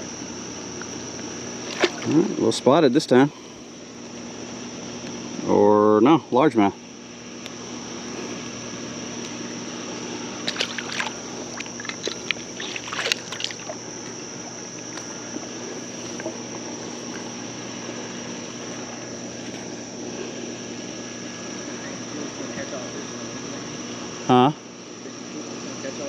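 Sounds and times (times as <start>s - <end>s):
high insect drone: 0.0s - 26.0s
creek ambience: 0.8s - 4.0s, 7.7s - 19.4s
sharp clicks and splashes: 1.6s - 2.2s, 10.4s - 14.2s.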